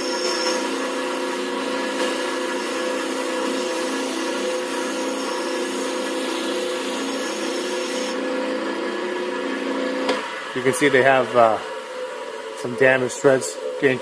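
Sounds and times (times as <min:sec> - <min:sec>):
hiss of metal being worked: 0:00.0 - 0:08.2
electric power tool running: 0:00.0 - 0:11.8.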